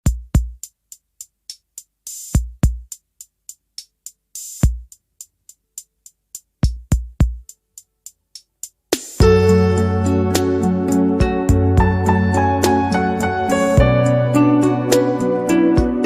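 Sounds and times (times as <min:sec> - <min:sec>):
hi-hat ticks: 0:00.0 - 0:14.2
kick drum hits: 0:09.2 - 0:09.4, 0:13.8 - 0:14.0.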